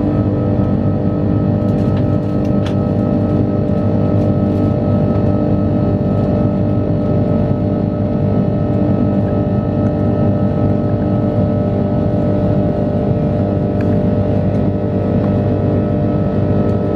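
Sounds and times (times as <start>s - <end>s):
jet engines droning: 0.0s - 16.9s.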